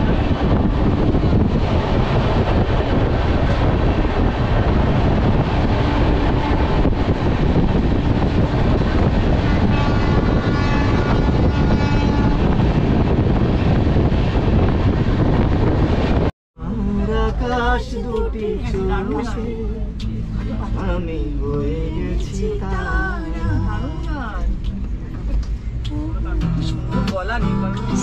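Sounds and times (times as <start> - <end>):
rushing air: 0.0 - 16.3
train wheel and rail noise: 0.0 - 28.0.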